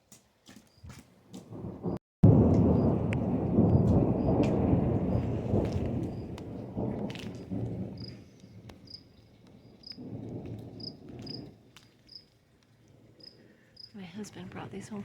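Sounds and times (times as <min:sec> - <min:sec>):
raindrops ticking: 0:01.3 - 0:15.0
thunder rumbling: 0:01.5 - 0:15.0
cricket chirping: 0:07.4 - 0:12.4, 0:13.2 - 0:14.0.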